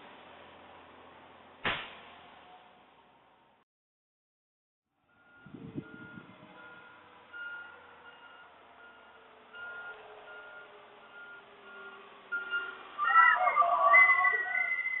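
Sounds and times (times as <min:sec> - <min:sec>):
heavy thump: 0:01.6 - 0:02.1
truck reversing alarm beeping: 0:05.0 - 0:15.0.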